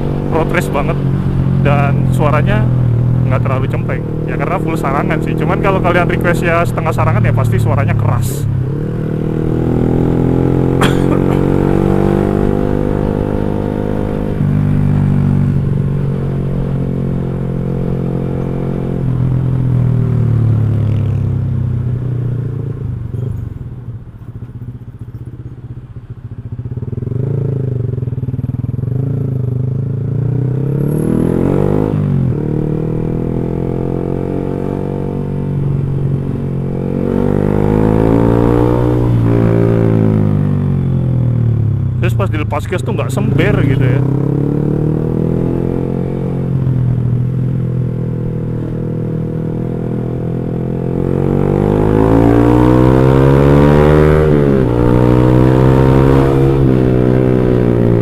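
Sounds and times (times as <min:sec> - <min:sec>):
small motorcycle engine revving: 0:08.8 - 0:14.7, 0:43.3 - 0:58.0.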